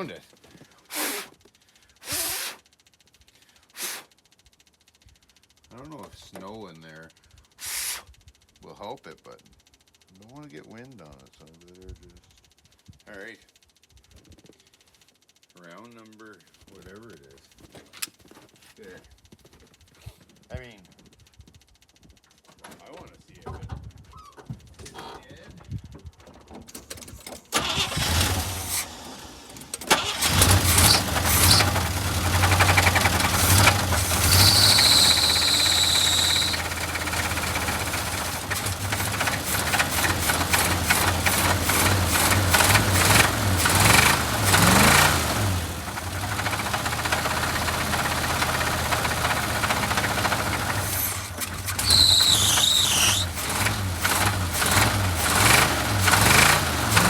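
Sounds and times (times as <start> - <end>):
short high squeal: 2.0 - 2.6, 34.2 - 36.8, 51.0 - 53.3
car engine cranking and running: 26.0 - 57.0.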